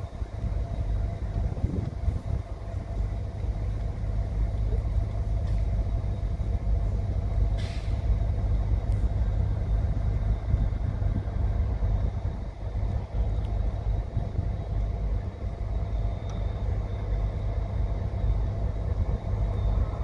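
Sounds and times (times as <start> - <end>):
diesel locomotive rumbling: 0.0 - 20.0
air hiss: 7.6 - 8.1.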